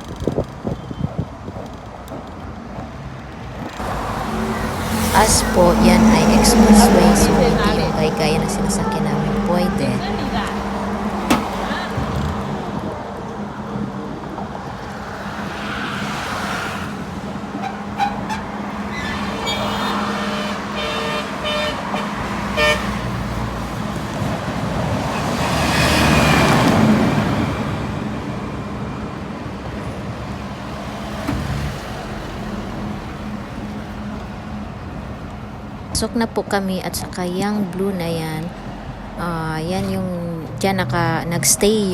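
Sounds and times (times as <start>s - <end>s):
road traffic hum: 0.0s - 41.9s
vehicle passing: 3.6s - 41.9s
vehicle horn tooting: 17.5s - 23.3s.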